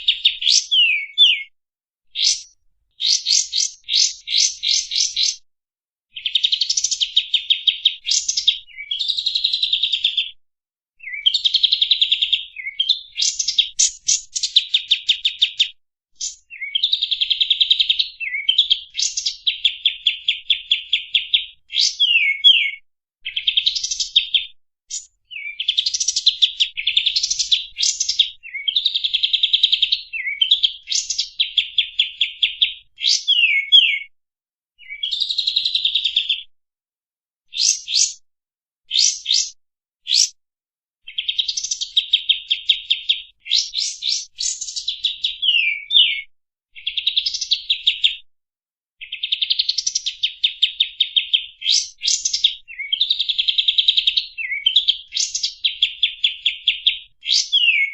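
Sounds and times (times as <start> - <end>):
down-slurred bird whistles: 0.1 - 1.5, 2.2 - 5.4, 11.0 - 11.6, 12.5 - 15.4, 16.2 - 17.1, 18.0 - 26.0, 30.0 - 34.1, 34.8 - 35.7, 37.5 - 38.2, 38.9 - 40.4, 43.0 - 46.3, 54.2 - 55.8, 56.4 - 57.9.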